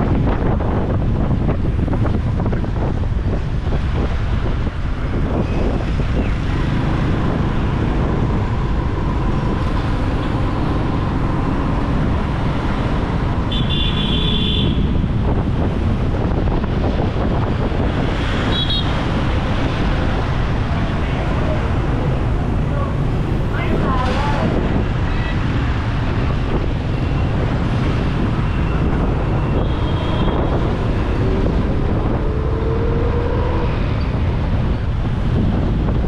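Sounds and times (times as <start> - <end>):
motorbike engine and road rumble: 0.0 - 36.0
wind on microphone: 0.0 - 36.0
vehicle horn: 13.5 - 14.9, 18.5 - 19.0, 29.5 - 30.5.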